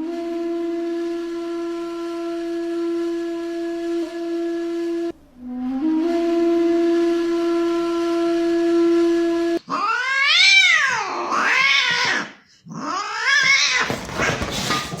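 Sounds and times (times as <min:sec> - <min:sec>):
flute-like held note: 0:00.0 - 0:09.6
cat meowing: 0:09.7 - 0:14.4.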